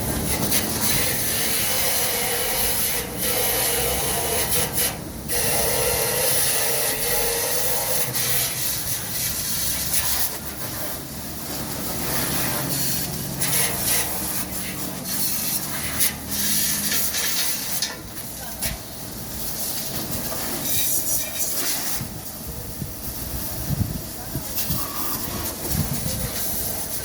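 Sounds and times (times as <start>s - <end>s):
steady motor hum: 0.0s - 20.5s
water spraying hard: 0.0s - 27.0s.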